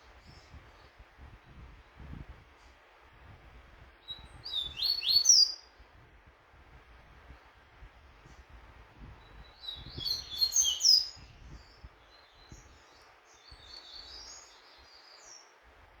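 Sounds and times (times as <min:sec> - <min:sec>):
bird chirping and twittering: 0:04.1 - 0:05.6, 0:09.2 - 0:15.5.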